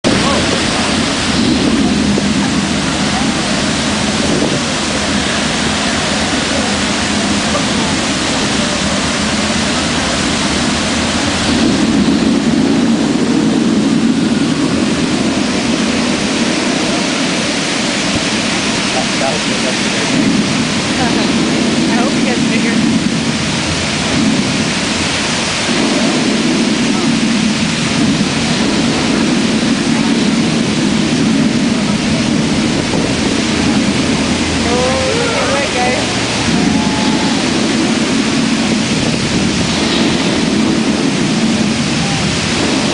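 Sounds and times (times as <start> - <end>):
volcano attraction rushing roar: 0.0 - 42.9.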